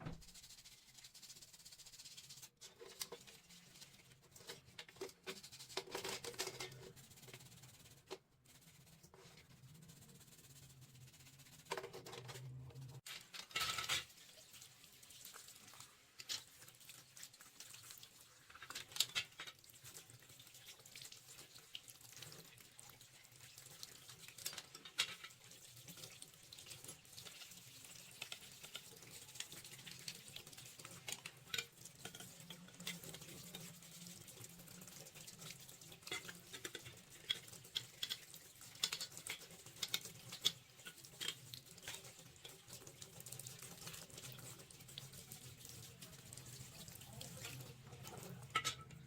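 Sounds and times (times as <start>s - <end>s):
faint tap water running: 0.0s - 0.8s, 12.9s - 49.0s
small parts clicking and scratching: 0.2s - 14.2s, 15.8s - 20.2s, 21.1s - 49.0s.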